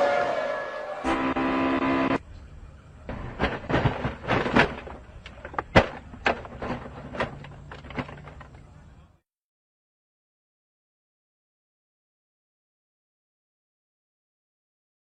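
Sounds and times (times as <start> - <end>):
steady engine-like tone: 0.0 - 3.1
car crash knocks and bangs: 3.1 - 8.5.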